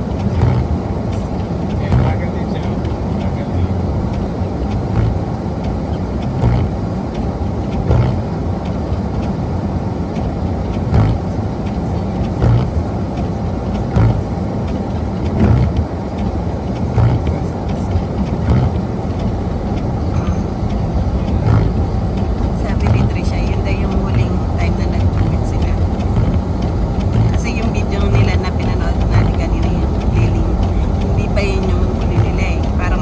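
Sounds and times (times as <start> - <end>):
car road and engine noise: 0.0 - 33.0
regular knocking: 13.7 - 33.0.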